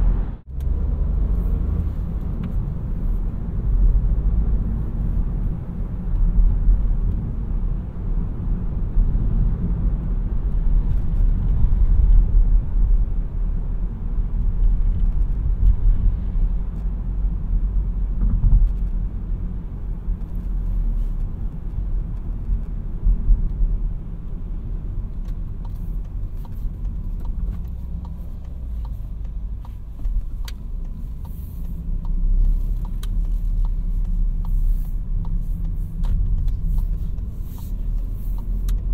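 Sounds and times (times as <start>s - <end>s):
car engine and road rumble: 0.0s - 38.9s
faint regular ticking: 25.6s - 38.9s.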